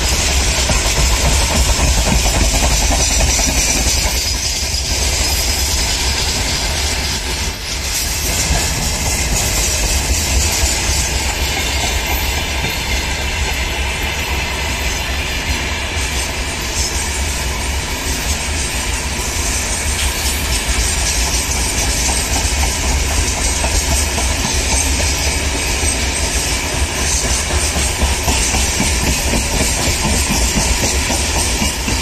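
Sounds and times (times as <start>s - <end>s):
freight train rolling past: 0.0s - 32.0s
steel wheels clattering on rails: 0.0s - 32.0s.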